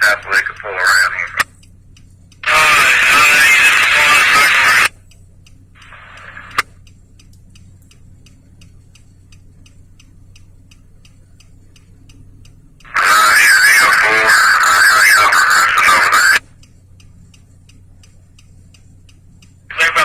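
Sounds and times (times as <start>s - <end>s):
radio transmission speech: 0.0s - 1.6s, 2.4s - 5.0s, 5.8s - 6.7s, 12.8s - 16.6s, 19.7s - 20.0s
turn signal ticking: 0.0s - 20.0s.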